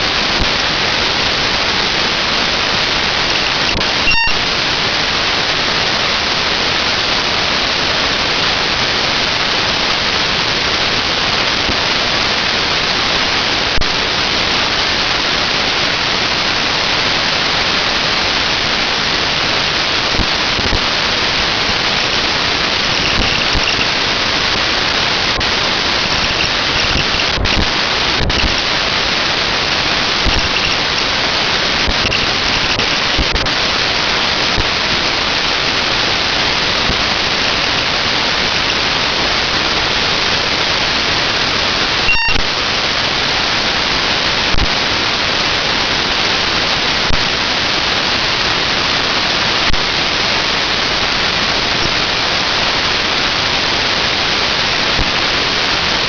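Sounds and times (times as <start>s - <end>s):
faint high whine: 2.8s - 4.6s, 19.6s - 39.1s, 42.0s - 42.6s.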